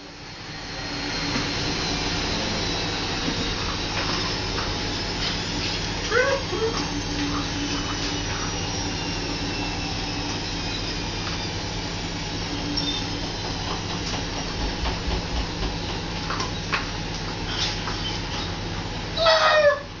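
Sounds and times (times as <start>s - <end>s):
washing machine spinning: 0.0s - 20.0s
dog call: 19.2s - 19.9s.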